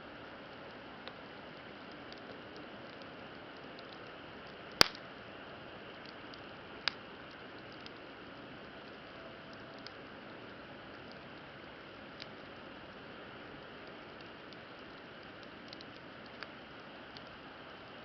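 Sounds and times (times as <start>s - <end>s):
campfire hissing: 0.0s - 18.0s
faint fire crackles: 0.0s - 18.0s.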